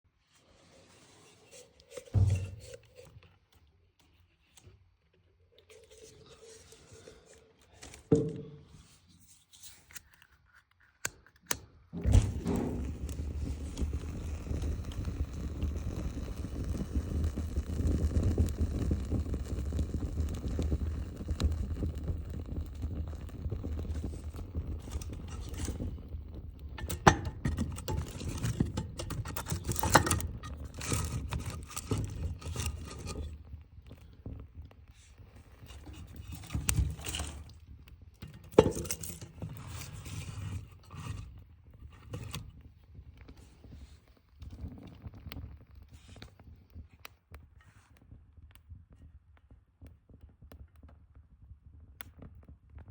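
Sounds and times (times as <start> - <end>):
wood and metal scraping and clinking: 0.6 - 3.2, 12.0 - 14.0, 23.9 - 33.6, 35.5 - 37.6, 38.2 - 42.4.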